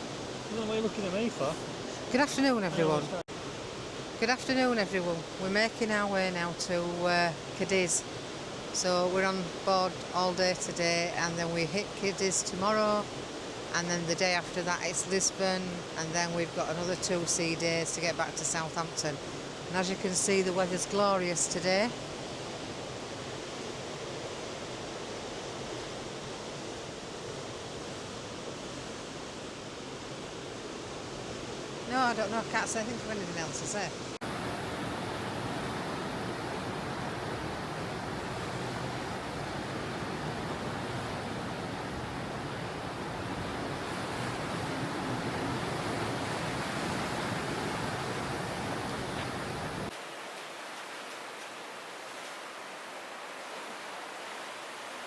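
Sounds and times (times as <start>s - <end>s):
sea rushing: 0.0s - 11.3s, 31.2s - 55.0s
wind buffeting microphone: 34.2s - 49.9s.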